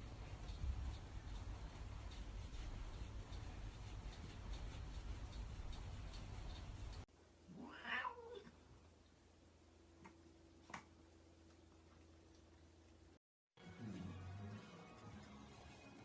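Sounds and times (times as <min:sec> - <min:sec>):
steady noisy hiss: 0:00.0 - 0:07.9
faint steady hum: 0:00.0 - 0:13.2
cat meowing: 0:07.5 - 0:08.6.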